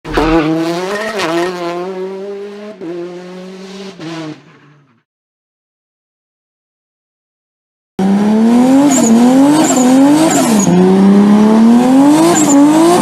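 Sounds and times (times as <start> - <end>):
car engine at high revs: 0.1 - 5.0, 8.0 - 13.0.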